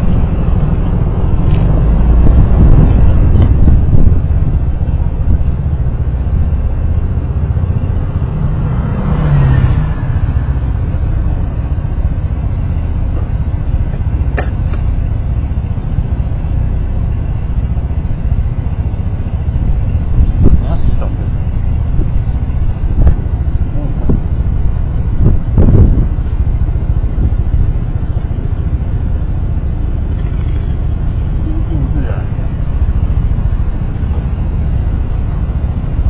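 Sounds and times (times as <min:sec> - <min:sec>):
sharp click: 0:00.0 - 0:03.6
vehicle rumble in traffic: 0:00.0 - 0:36.0.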